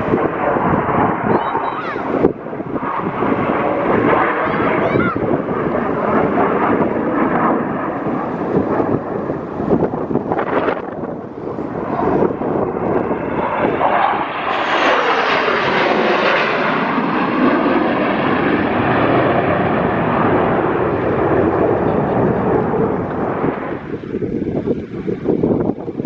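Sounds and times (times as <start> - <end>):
fighter jet roaring past: 0.0 - 26.0.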